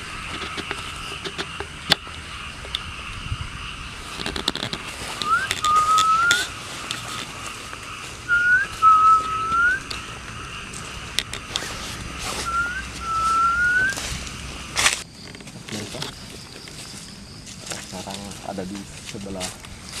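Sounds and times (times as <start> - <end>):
whistled call: 5.2 - 6.6, 8.2 - 10.2, 12.1 - 14.2.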